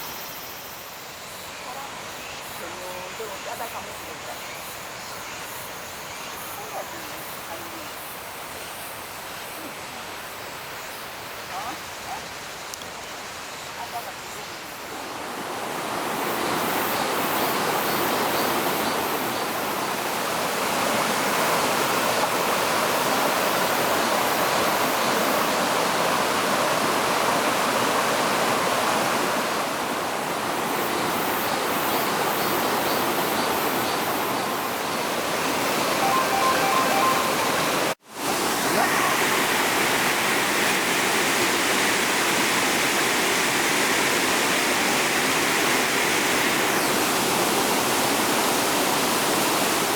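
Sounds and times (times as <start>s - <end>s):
waterfall rushing: 13.3s - 49.9s.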